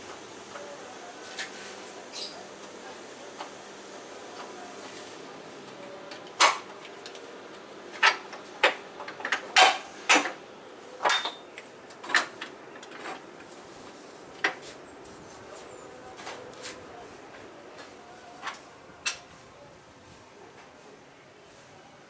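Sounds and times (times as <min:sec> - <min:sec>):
metal tools clinking: 0:11.0 - 0:11.5.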